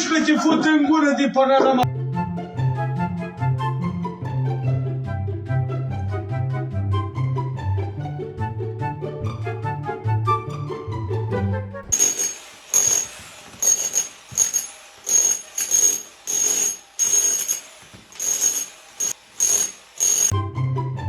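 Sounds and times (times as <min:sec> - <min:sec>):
machine hissing bursts with whine: 0:11.9 - 0:20.3.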